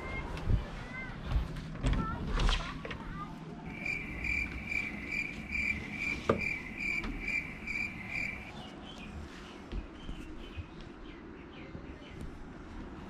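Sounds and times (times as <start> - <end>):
insect chirping: 3.7 - 8.5.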